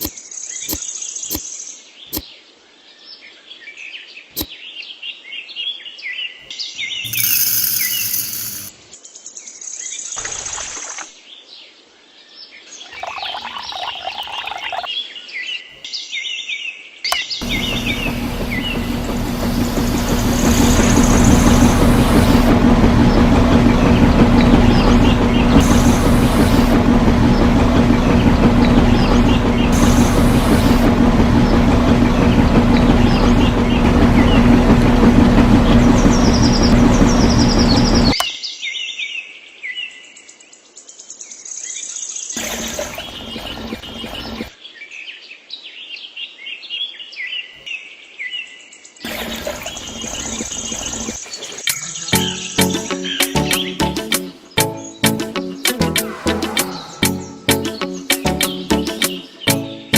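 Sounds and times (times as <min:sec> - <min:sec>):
small motor humming: 0:07.1 - 0:08.7, 0:17.4 - 0:38.2
birds chirping: 0:12.8 - 0:14.9, 0:17.1 - 0:38.2, 0:49.8 - 0:59.8.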